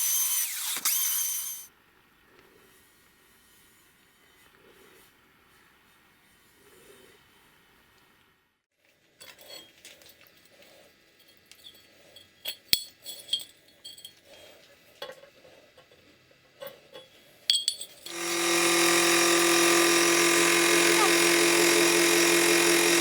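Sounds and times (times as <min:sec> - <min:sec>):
small electric motor running: 0:00.0 - 0:01.7, 0:18.1 - 0:23.0
metal tools clinking: 0:11.2 - 0:14.5, 0:16.6 - 0:18.2.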